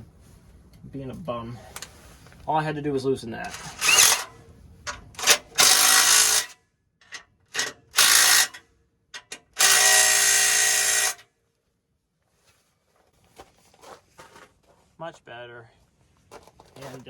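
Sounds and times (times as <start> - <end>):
cordless impact gun bursts: 3.5 - 4.4, 5.2 - 6.6, 7.6 - 8.6, 9.4 - 11.2.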